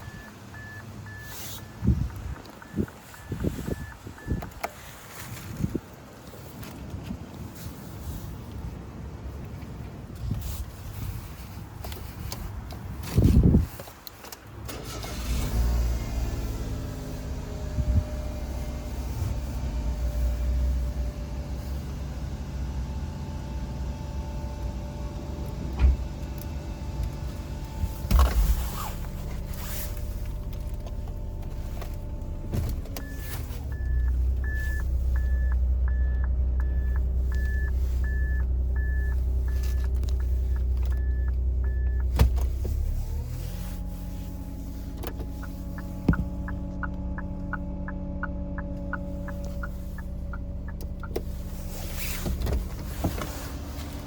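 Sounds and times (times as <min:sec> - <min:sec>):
turn signal relay ticking: 0:00.0 - 0:04.9, 0:29.0 - 0:43.0, 0:44.4 - 0:53.2
car engine idling: 0:00.0 - 0:05.6, 0:14.7 - 0:54.0.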